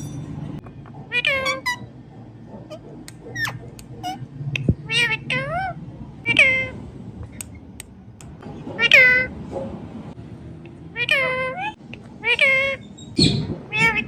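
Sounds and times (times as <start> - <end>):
parrot meowing: 1.1 - 1.9, 4.8 - 6.8, 8.8 - 9.3, 11.0 - 12.9, 13.7 - 14.0
parrot squeaks and clicks: 2.7 - 5.2.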